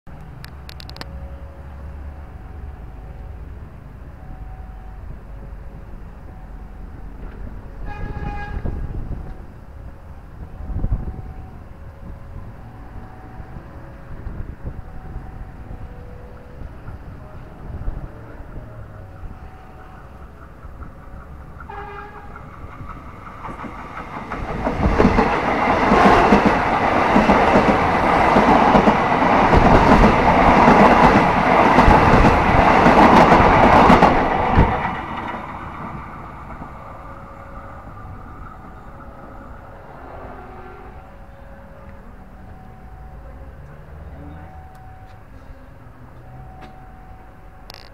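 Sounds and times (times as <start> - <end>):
train horn toot: 7.7 - 9.4, 21.6 - 22.5, 39.8 - 44.6.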